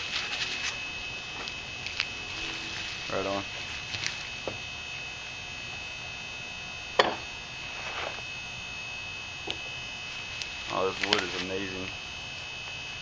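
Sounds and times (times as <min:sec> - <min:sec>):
steady low hum: 0:00.0 - 0:13.0
thin high tone: 0:00.4 - 0:05.7.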